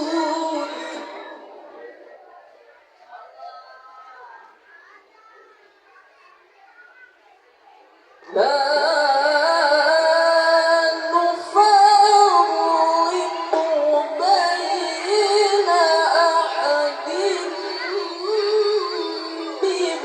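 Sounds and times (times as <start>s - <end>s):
young person chanting melodically: 0.0s - 2.2s, 8.3s - 20.0s.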